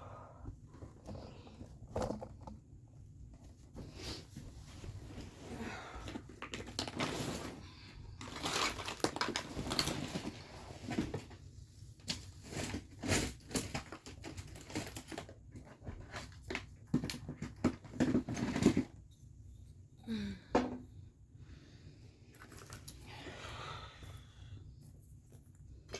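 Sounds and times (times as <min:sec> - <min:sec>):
small objects clattering: 0:06.3 - 0:07.6, 0:08.2 - 0:11.2, 0:12.0 - 0:19.0, 0:22.3 - 0:23.2
bags and papers rustling: 0:08.2 - 0:11.4.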